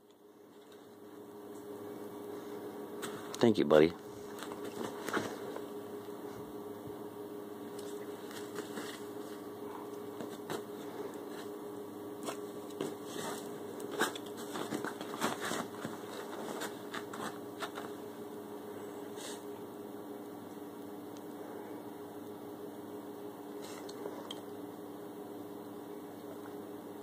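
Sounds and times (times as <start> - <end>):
appliance or fan humming: 0.0 - 27.0
small rustles: 4.0 - 6.5, 7.7 - 11.6, 12.2 - 18.1.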